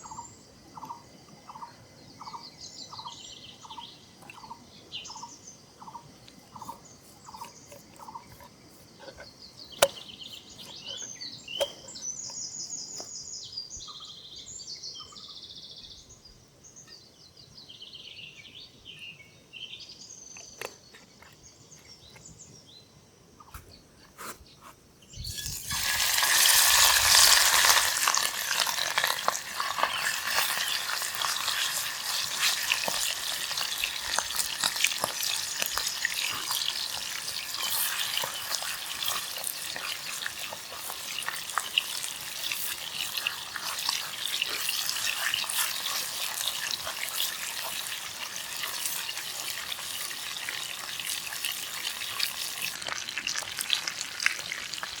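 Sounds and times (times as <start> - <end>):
food sizzling in a pan: 25.2 - 55.0.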